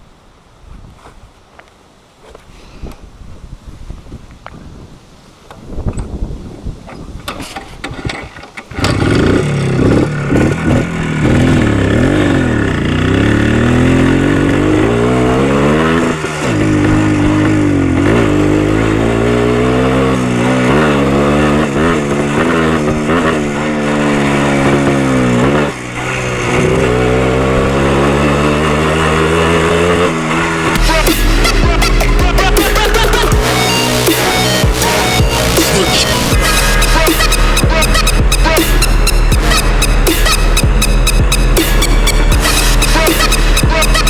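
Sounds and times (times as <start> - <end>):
wind on microphone: 2.7 - 8.4
motorcycle engine accelerating: 8.6 - 44.0.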